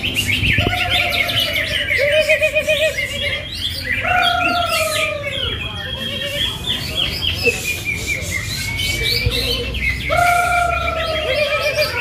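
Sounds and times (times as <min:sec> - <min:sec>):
songbirds chirping and trilling: 0:00.0 - 0:12.0.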